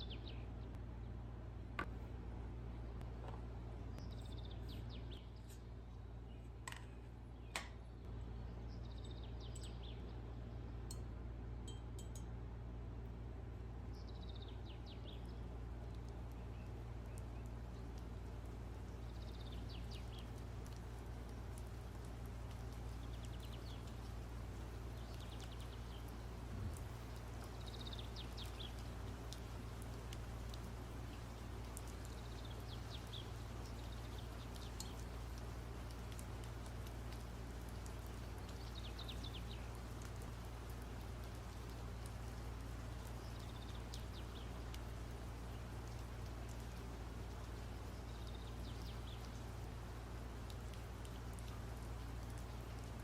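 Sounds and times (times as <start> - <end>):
bird singing: 0.0 - 0.6, 4.0 - 11.0
steady low hum: 0.0 - 53.0.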